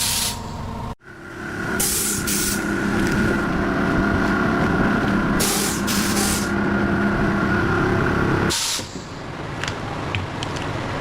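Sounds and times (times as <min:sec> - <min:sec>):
air hissing: 0:00.0 - 0:00.5, 0:01.8 - 0:02.7, 0:05.4 - 0:06.6, 0:08.5 - 0:09.2
factory machinery humming: 0:00.0 - 0:09.5.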